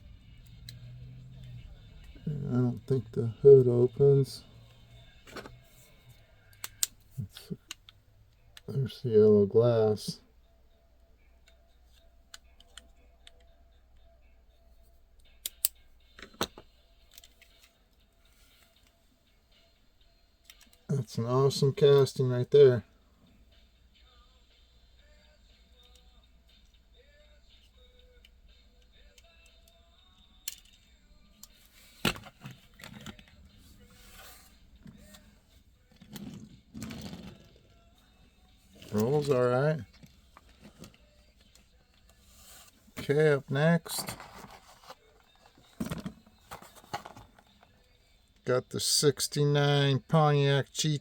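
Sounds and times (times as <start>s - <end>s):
toy car clicks: 30.4s - 30.8s.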